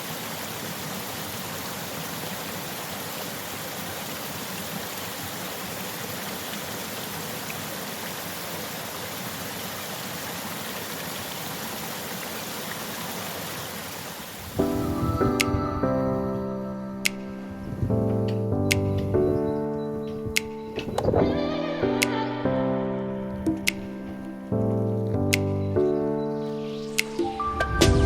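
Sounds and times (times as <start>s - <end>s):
stream running water: 0.0s - 22.1s
music: 14.6s - 28.0s.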